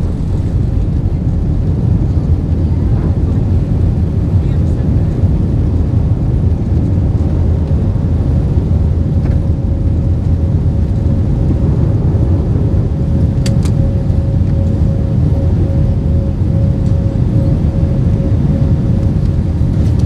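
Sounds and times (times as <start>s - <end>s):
airplane cabin rumble: 0.0s - 20.0s
faint steady hum: 7.3s - 20.0s.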